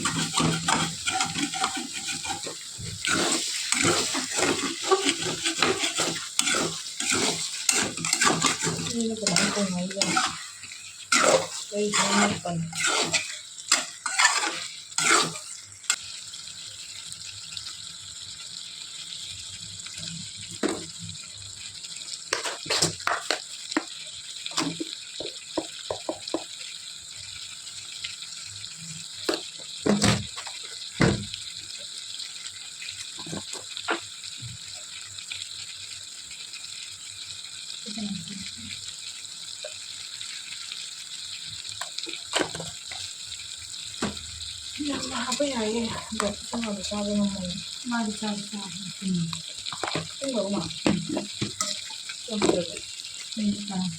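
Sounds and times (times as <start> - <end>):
pans and utensils clinking: 0.0 - 15.5, 22.3 - 23.9, 24.5 - 26.5, 29.3 - 31.3, 33.2 - 34.1, 41.8 - 43.1, 49.7 - 52.8
steady kitchen hiss: 0.0 - 53.9.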